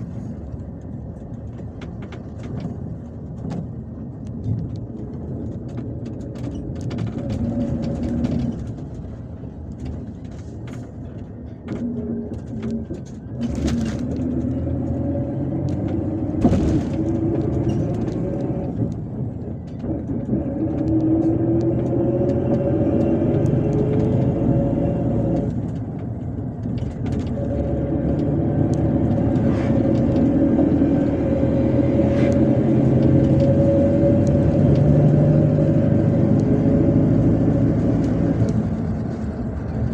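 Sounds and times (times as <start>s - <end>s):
bus engine drone: 0.0s - 39.9s
road noise: 0.0s - 39.9s
bus body knocks and rattles: 0.8s - 32.0s.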